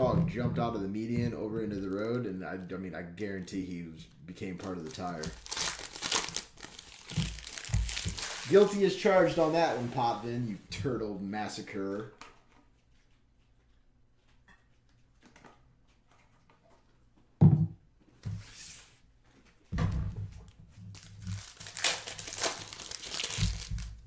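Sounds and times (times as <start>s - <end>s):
card pack wrappers crinkling: 1.7s - 2.2s, 4.4s - 10.6s, 20.9s - 24.0s.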